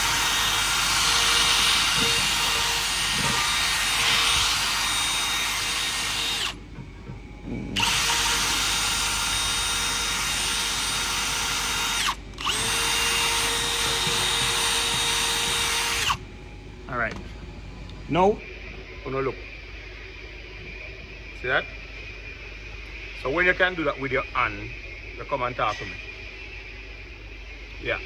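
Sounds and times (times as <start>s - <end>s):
power tool high whine: 0.0s - 6.6s, 7.8s - 16.2s.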